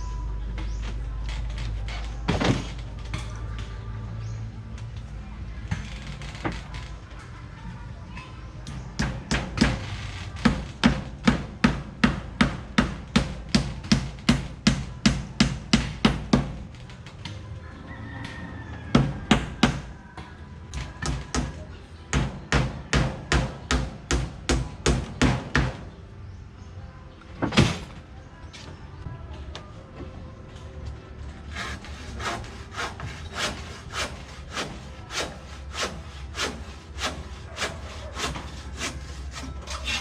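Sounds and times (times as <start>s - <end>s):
hand tool striking wood: 31.6s - 40.0s.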